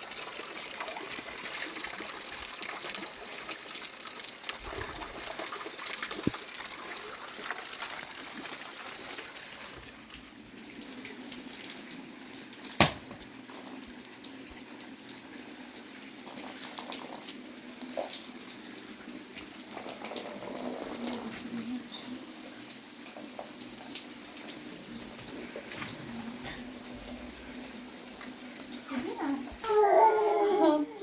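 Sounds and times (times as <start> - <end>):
water running and trickling: 0.0 - 31.0
sharp knock: 12.8 - 13.2.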